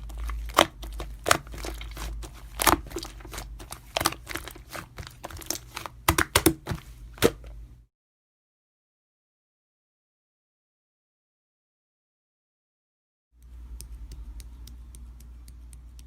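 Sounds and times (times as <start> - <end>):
clicks and crinkling handling noise: 0.0 - 7.6
low steady hum: 0.0 - 7.9, 13.4 - 16.0.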